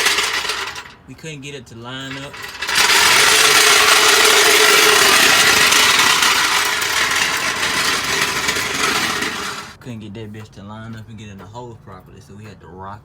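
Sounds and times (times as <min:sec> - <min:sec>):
power tool running on metal: 0:00.0 - 0:01.0, 0:02.1 - 0:09.8.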